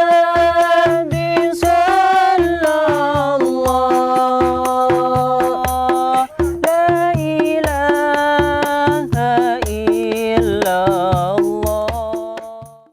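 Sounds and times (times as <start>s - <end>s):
hand drum beat: 0.0s - 12.9s
person singing ornamented melody: 0.0s - 12.9s.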